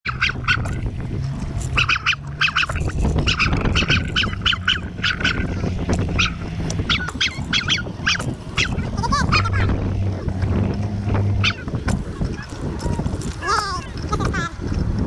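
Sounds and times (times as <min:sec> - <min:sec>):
low steady rumble: 0:00.1 - 0:15.0
birds calling in short calls: 0:01.4 - 0:09.7, 0:11.4 - 0:14.6.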